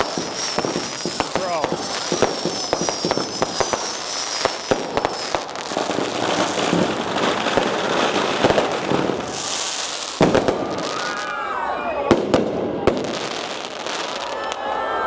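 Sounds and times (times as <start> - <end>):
loud firecracker bang: 0.0 - 11.2
firecrackers crackling: 0.0 - 14.9.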